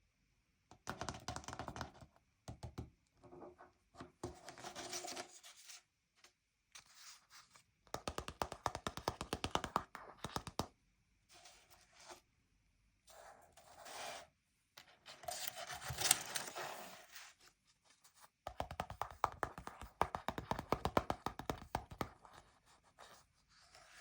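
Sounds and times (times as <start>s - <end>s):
paper rustling: 15.2s - 18.2s.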